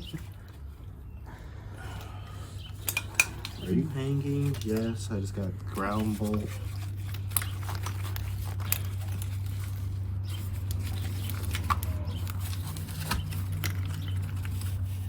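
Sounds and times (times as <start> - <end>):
metal parts and tools clicking: 2.6 - 4.9.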